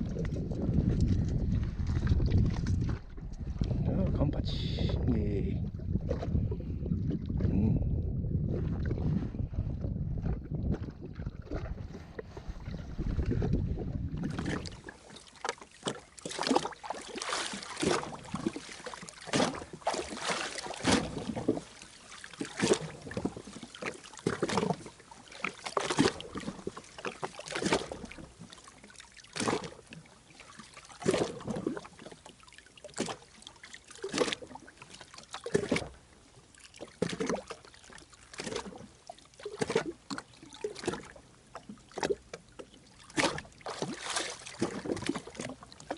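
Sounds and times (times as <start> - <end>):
wind rumble on microphone: 0.0 - 14.9
water splashing against hull: 0.0 - 45.9.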